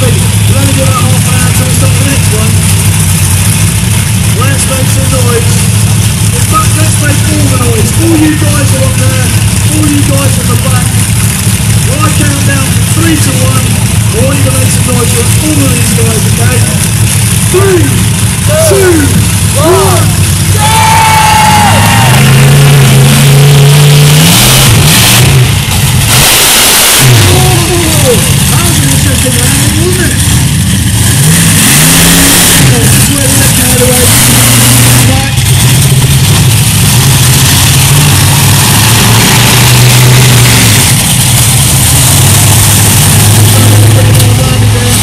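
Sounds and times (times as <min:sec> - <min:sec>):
large truck engine revving: 0:00.0 - 0:45.0
loud held shout or horn: 0:20.6 - 0:22.3.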